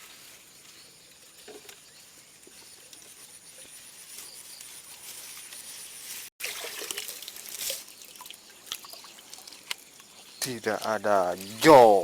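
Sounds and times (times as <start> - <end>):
stream water trickling and splashing: 6.4 - 11.6.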